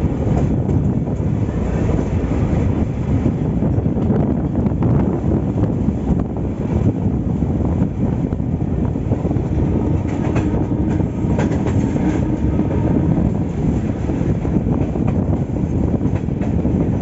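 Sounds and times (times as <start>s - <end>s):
train rumbling along track: 0.0s - 17.0s
wheels clacking over rail joints: 9.9s - 12.6s.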